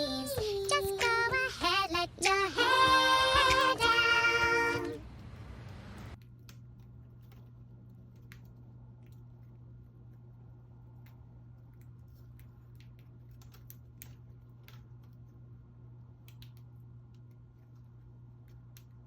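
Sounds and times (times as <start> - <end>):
child singing unaccompanied: 0.0 - 5.1
faint steady hum: 0.0 - 19.0.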